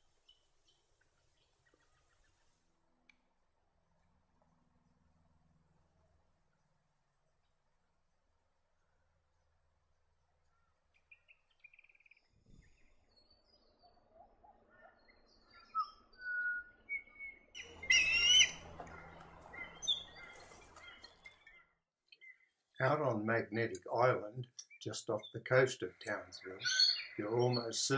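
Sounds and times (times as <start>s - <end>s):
wild birds chirping and whistling: 10.5s - 22.5s, 24.4s - 27.9s
wavering whistled bird call: 14.8s - 18.6s, 26.6s - 27.2s.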